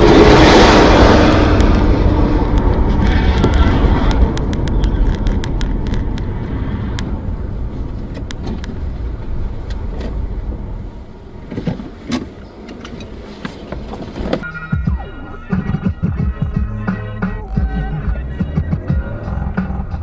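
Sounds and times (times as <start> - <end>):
car driving rumble: 0.0 - 20.0.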